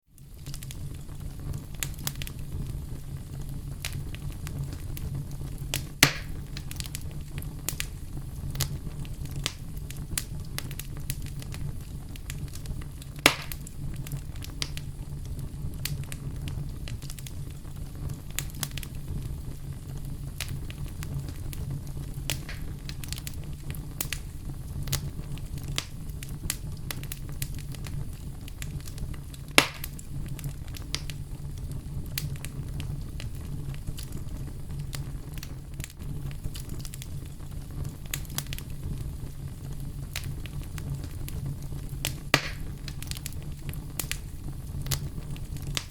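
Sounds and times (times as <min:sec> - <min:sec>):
wood fire crackling: 0:00.1 - 0:45.9
logs popping: 0:05.7 - 0:07.0, 0:13.2 - 0:13.7, 0:22.3 - 0:23.4, 0:29.5 - 0:30.0, 0:42.0 - 0:43.4.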